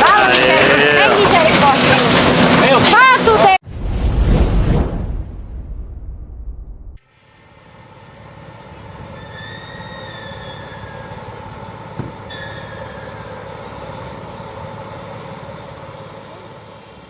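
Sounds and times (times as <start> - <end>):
heavy truck rumbling slowly: 7.8 - 17.0
short high squeal: 9.1 - 11.5, 12.3 - 14.0.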